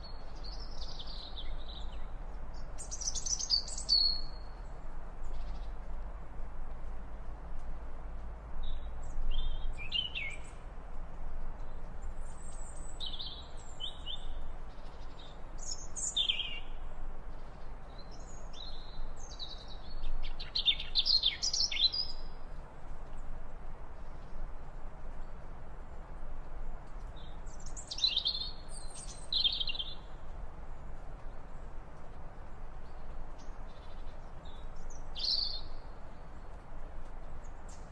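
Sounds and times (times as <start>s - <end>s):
small birds chirping and singing: 0.0s - 6.0s, 8.6s - 10.7s, 11.6s - 22.4s, 26.8s - 31.8s, 32.4s - 37.9s
background hiss: 0.0s - 37.9s.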